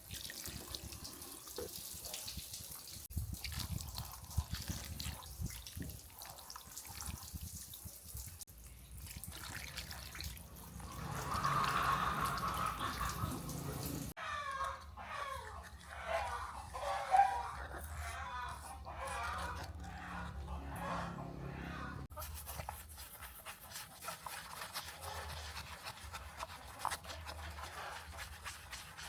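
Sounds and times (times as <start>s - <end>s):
steady stream of water: 0.0s - 14.2s, 22.3s - 29.0s
water splashing and dripping: 0.0s - 16.8s.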